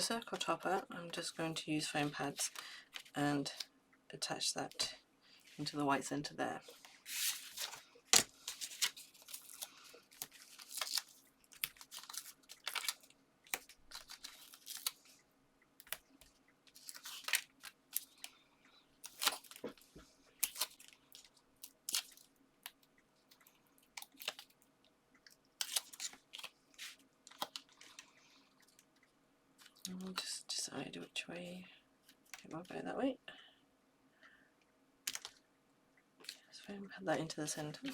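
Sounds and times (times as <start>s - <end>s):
paper and card rustling: 6.6s - 15.1s, 15.8s - 18.3s, 19.0s - 22.3s, 25.6s - 28.1s, 37.4s - 37.9s.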